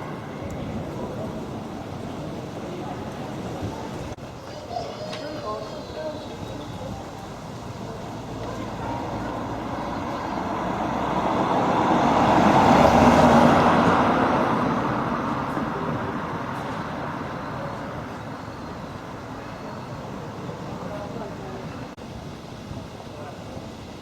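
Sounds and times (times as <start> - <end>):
road vehicle passing: 5.4 - 22.0.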